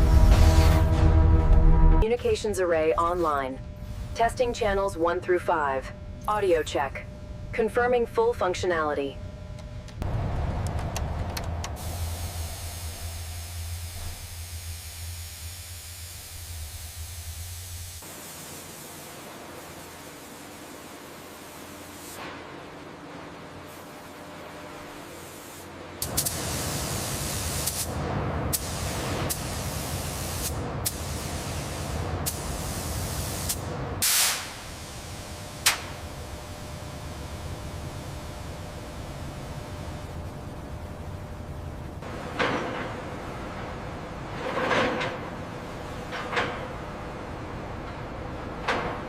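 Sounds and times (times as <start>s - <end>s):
deep hum: 0.0s - 2.0s, 9.2s - 18.0s
low rumble: 0.0s - 2.0s, 9.7s - 18.0s
steady hissing: 10.2s - 20.6s.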